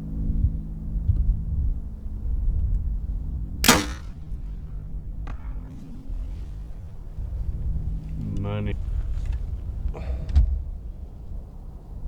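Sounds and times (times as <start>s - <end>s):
arrow striking target: 3.6s - 4.2s
bow string snap: 3.6s - 4.2s.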